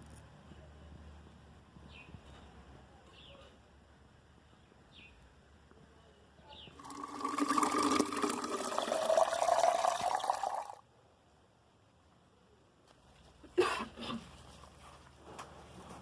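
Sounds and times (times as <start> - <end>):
water running: 6.8 - 10.8.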